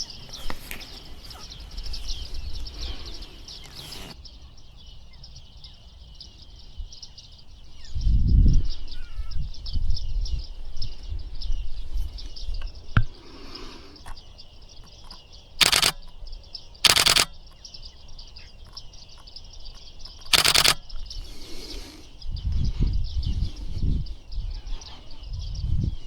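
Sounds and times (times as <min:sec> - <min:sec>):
birds chirping high calls: 0:00.0 - 0:26.0
low wind rumble on microphone: 0:00.4 - 0:04.2, 0:06.6 - 0:13.2, 0:20.9 - 0:26.0
camera shutter firing rapidly: 0:15.6 - 0:16.1, 0:16.8 - 0:17.4, 0:20.2 - 0:20.9.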